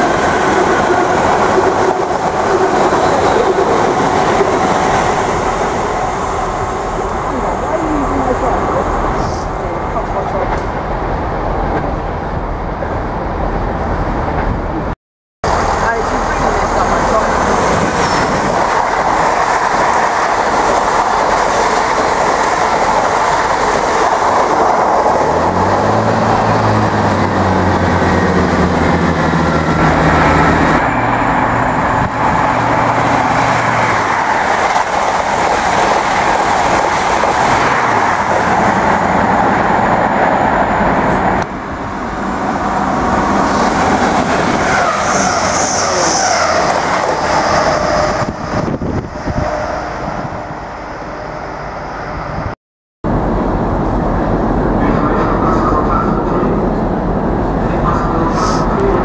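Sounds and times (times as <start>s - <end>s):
high speed train passing close: 0.0s - 59.0s
trains passing at speed: 0.0s - 59.0s.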